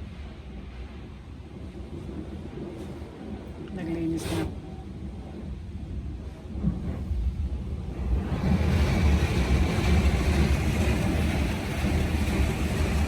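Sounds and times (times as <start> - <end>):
water spray rushing hiss: 4.1 - 4.6.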